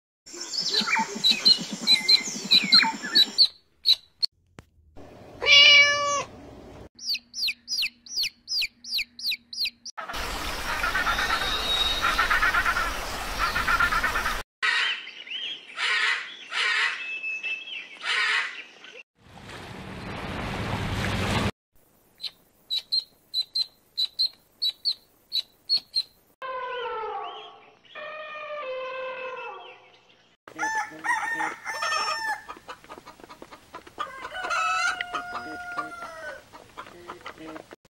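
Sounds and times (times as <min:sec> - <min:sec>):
young birds peeping: 0:00.3 - 0:04.3, 0:07.0 - 0:09.9, 0:22.2 - 0:26.2
quick downward chirps: 0:00.5 - 0:04.3, 0:07.0 - 0:09.9.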